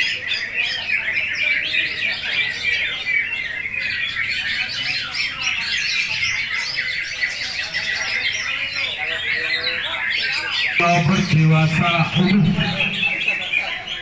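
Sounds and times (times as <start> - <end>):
chorus of birds singing: 0.0 - 14.0.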